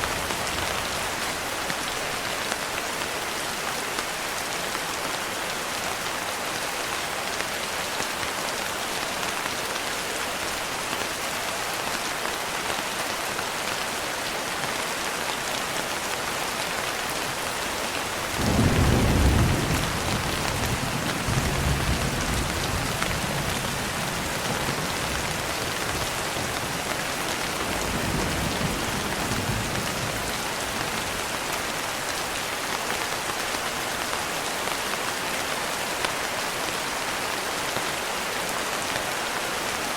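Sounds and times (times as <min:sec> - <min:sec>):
steady rain: 0:00.0 - 0:39.9
thunder boom and rumbles: 0:18.4 - 0:23.5.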